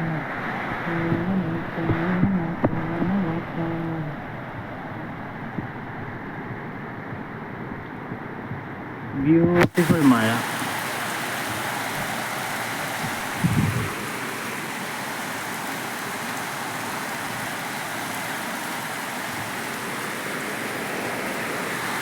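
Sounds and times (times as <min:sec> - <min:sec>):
heavy rain falling: 0:09.6 - 0:22.0.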